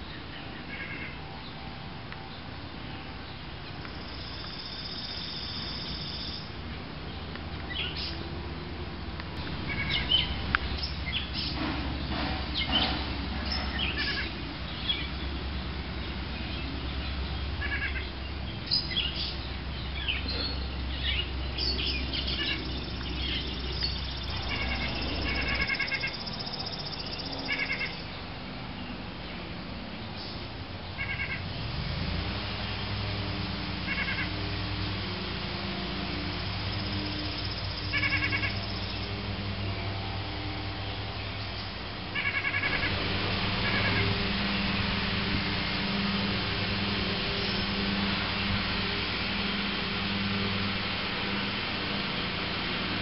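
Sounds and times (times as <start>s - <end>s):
birds chirping and singing: 3.2s - 8.3s, 9.4s - 29.5s, 36.0s - 53.0s.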